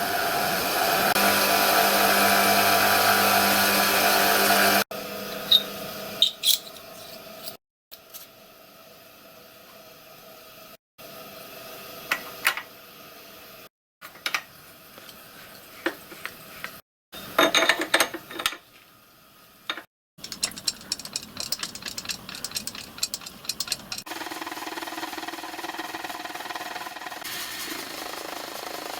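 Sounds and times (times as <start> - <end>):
fast small ticks: 20.2 - 24.1
metal clatter: 20.2 - 24.1
sharp metallic clicks: 20.2 - 24.1.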